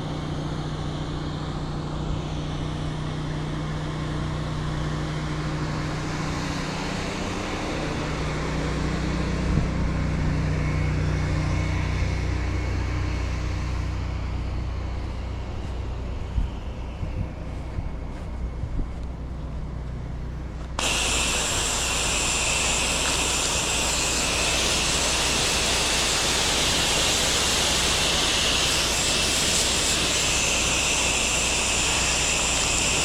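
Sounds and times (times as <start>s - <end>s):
pressure washer engine hum: 2.6s - 33.0s
water spray hissing: 20.8s - 33.0s.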